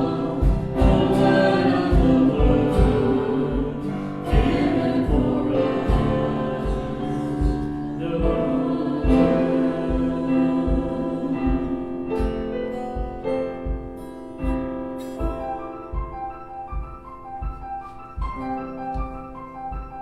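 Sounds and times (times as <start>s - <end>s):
guitar chords: 0.0s - 20.0s
piano chords: 0.0s - 20.0s
steady low beat: 0.0s - 20.0s.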